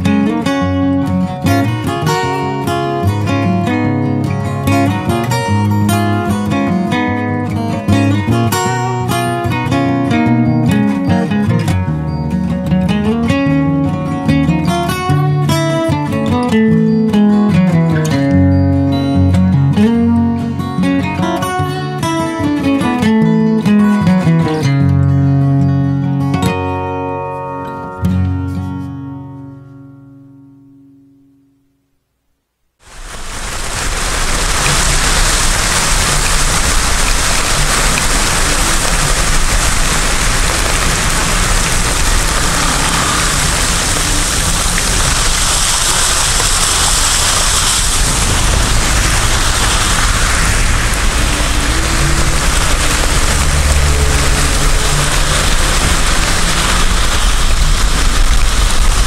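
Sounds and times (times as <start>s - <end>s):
heavy rain drumming on car roof: 32.8s - 59.0s
low rumble of moving car: 33.0s - 59.0s.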